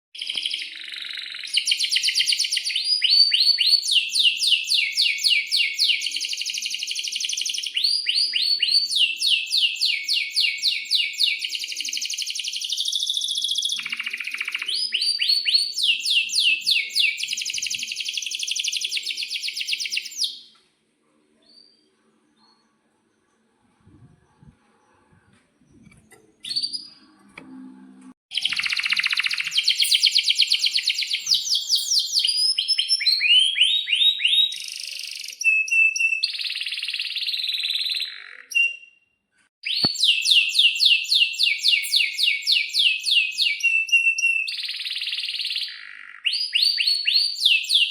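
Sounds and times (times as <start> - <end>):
canary singing trills: 28.3 - 39.0.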